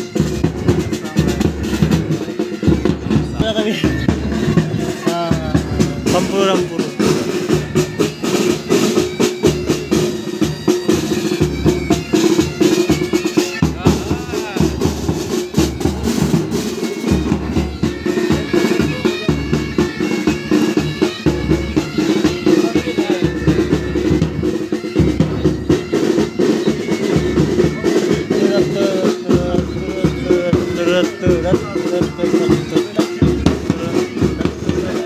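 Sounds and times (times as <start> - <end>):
bagpipes playing: 0.0 - 35.0
bass drum beats: 0.4 - 13.0, 13.6 - 19.9.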